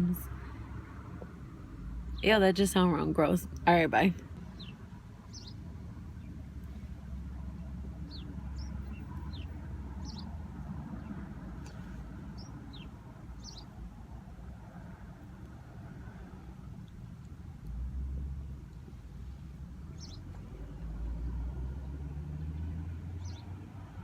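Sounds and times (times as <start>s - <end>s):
steady low rumble: 0.0s - 22.0s
small birds chirping: 4.4s - 13.9s, 18.5s - 21.0s, 23.2s - 23.6s.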